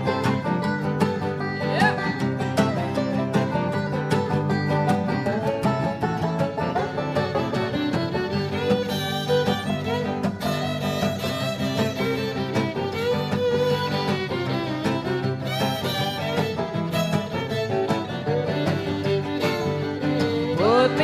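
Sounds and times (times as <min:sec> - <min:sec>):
fiddle melody with sliding notes: 0:00.0 - 0:21.0
strummed guitar: 0:00.0 - 0:21.0.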